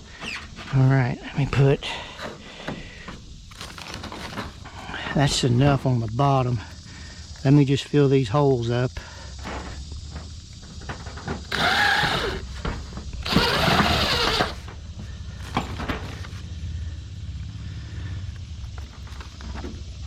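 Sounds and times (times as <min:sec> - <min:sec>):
power drill driving screws into metal: 0:11.4 - 0:12.5, 0:13.2 - 0:14.7.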